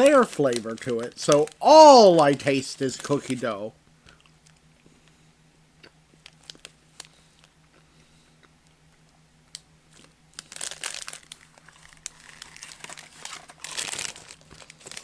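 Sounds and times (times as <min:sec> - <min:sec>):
plastic packaging crinkling: 0:00.0 - 0:03.6, 0:06.2 - 0:07.1, 0:09.9 - 0:15.0.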